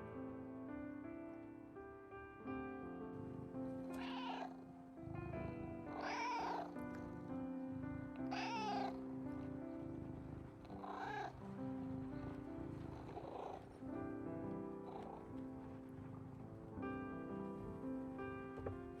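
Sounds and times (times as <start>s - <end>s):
background music: 0.0s - 19.0s
cat meowing: 3.9s - 4.6s, 5.4s - 7.2s, 7.9s - 11.4s, 12.3s - 13.7s.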